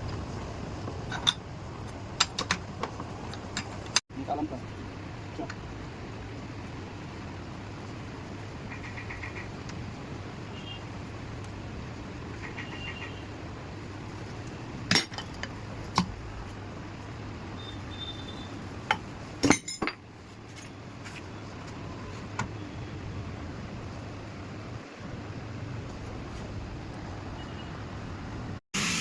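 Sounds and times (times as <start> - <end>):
metallic clinks and knocks: 18.9 - 20.8.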